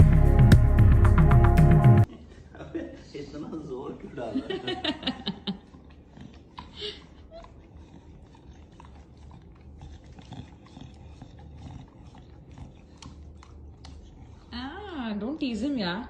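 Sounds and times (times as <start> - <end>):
low steady hum: 2.1 - 16.0.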